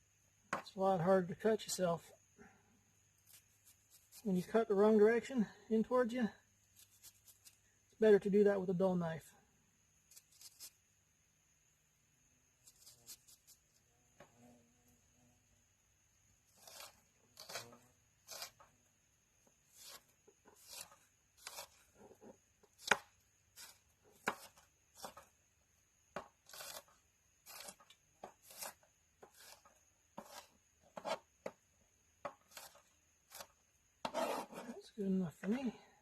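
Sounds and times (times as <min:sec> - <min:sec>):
knife chopping food: 0:22.8 - 0:25.2.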